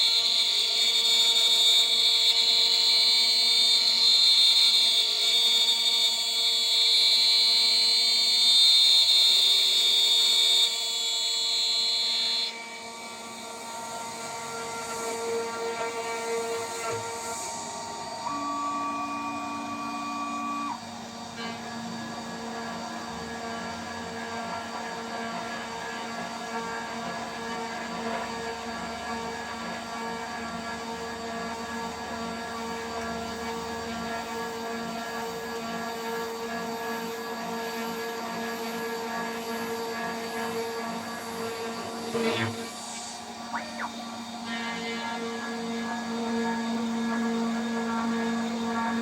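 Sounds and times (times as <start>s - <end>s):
router spindle whine: 0.0s - 49.0s
higher machine tones: 12.9s - 20.8s, 41.6s - 45.3s.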